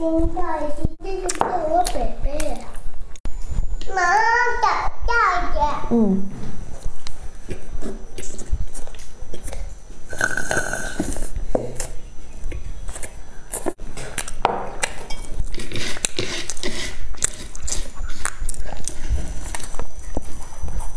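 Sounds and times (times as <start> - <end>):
child's voice: 0.0 - 2.8, 3.8 - 6.2
chewing dry snack: 12.9 - 20.9.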